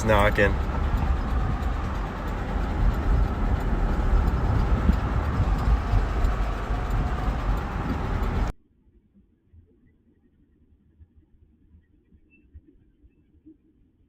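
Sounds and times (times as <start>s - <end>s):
engine with rod knock: 0.0s - 8.5s.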